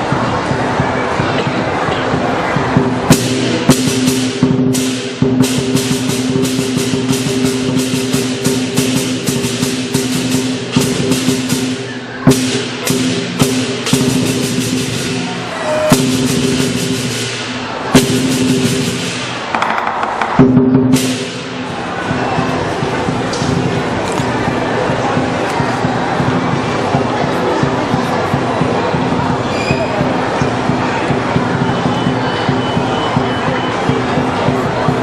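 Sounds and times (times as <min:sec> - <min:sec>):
big drum: 0:00.0 - 0:35.0
clashing cymbals: 0:02.6 - 0:19.5, 0:20.4 - 0:27.0.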